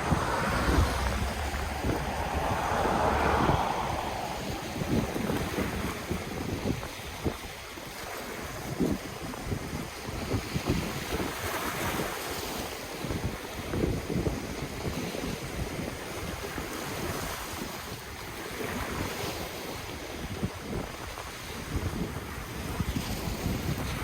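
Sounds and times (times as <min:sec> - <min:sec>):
ocean waves washing in: 0:00.0 - 0:06.9
wind buffeting microphone: 0:00.0 - 0:19.3.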